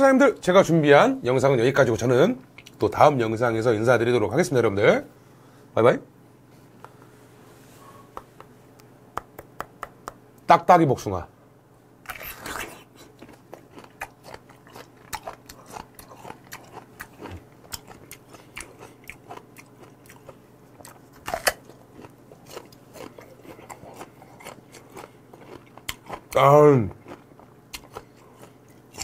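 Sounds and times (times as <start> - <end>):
peach crunching while chewed: 12.0 - 29.0.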